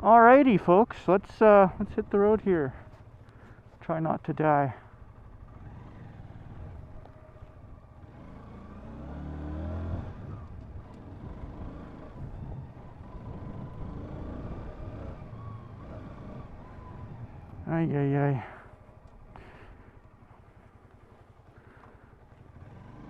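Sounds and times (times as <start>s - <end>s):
motorcycle engine pulling away: 4.9s - 17.7s, 18.4s - 23.0s.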